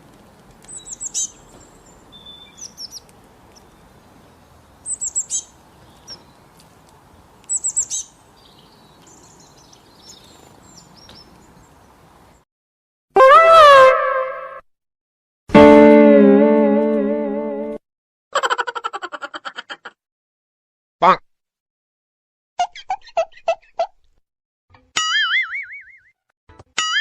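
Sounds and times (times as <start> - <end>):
bird chirping: 0.7 - 12.4.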